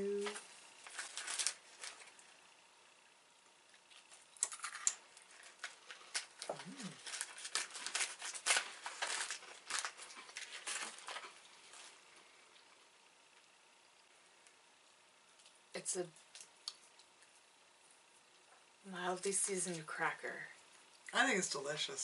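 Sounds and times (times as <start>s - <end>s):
crackers being crunched: 0.2s - 2.3s, 3.7s - 12.7s, 16.3s - 17.4s.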